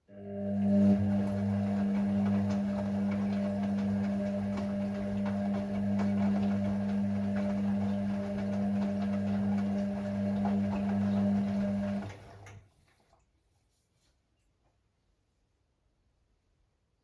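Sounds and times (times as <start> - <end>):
washing machine humming: 0.0 - 12.9.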